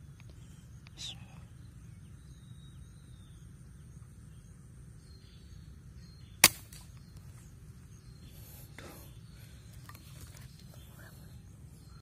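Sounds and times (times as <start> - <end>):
air rifle shot: 6.4 - 7.0.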